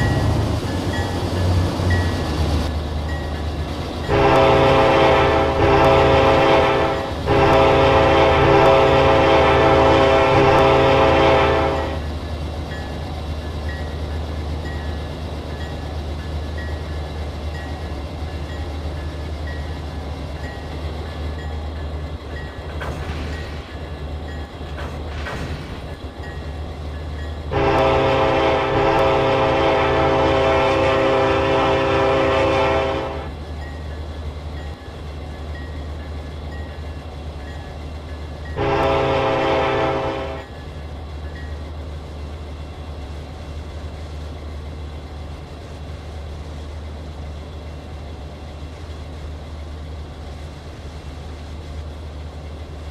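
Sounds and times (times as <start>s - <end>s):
diesel locomotive droning: 0.0s - 52.9s
train air horn blasts: 4.1s - 12.0s, 27.5s - 33.4s, 38.6s - 40.5s.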